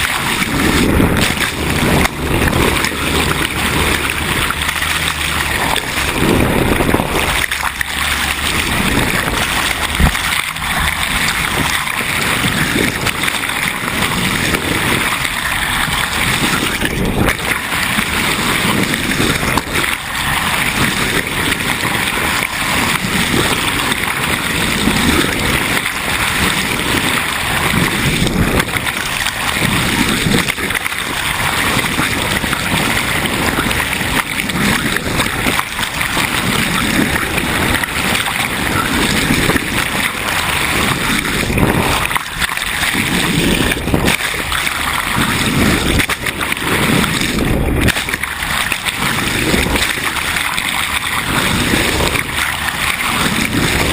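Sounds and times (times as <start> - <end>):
water splashing along boat hull: 0.0 - 53.9.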